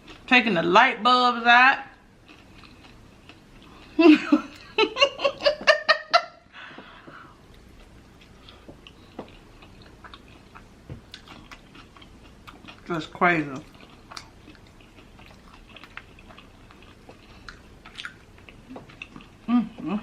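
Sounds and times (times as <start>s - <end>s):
woman laughing: 4.0s - 6.5s.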